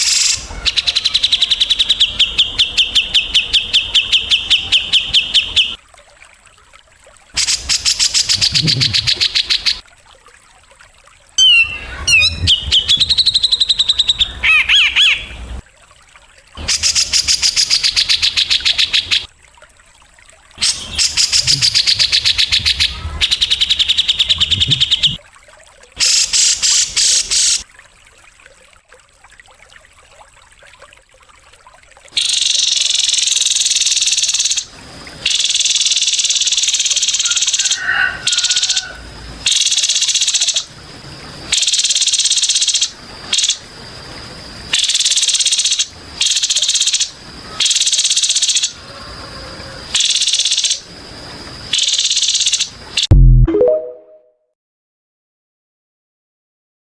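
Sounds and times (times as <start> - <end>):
rapid high bird trills: 11.4 - 15.3.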